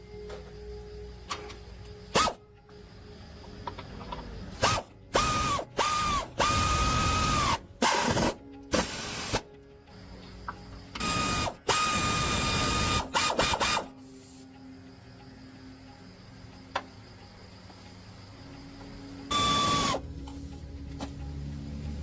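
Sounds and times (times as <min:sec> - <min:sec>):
pneumatic impact wrench whining: 0:02.1 - 0:02.4, 0:04.5 - 0:09.4, 0:11.0 - 0:13.9, 0:19.3 - 0:20.0.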